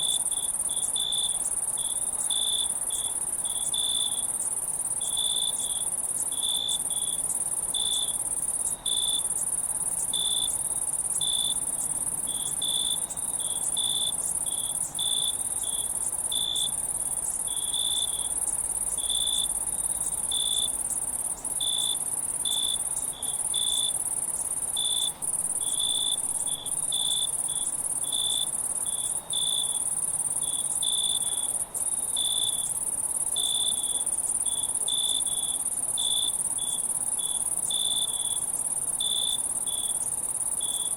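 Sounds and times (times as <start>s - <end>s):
crickets trilling: 0.0s - 40.9s
lower cricket chirps: 0.0s - 40.9s.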